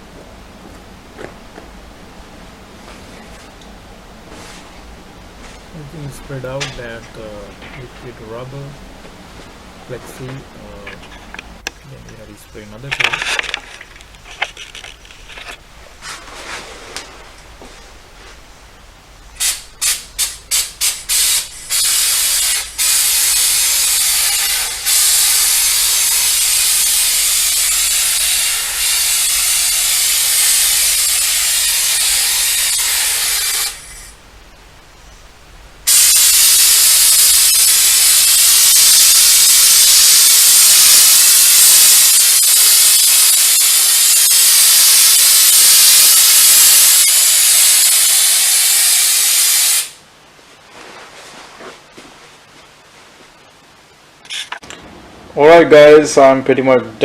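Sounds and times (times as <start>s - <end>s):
aerosol can spraying: 19.4s - 34.1s, 35.9s - 50.0s.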